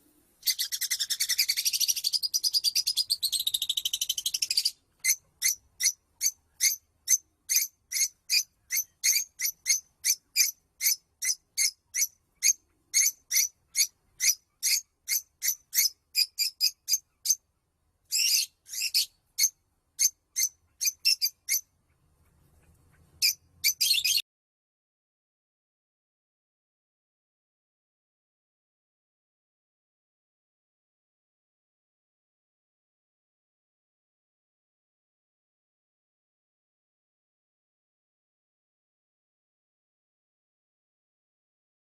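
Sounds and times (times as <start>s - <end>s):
songbird chirping: 0.1s - 24.2s.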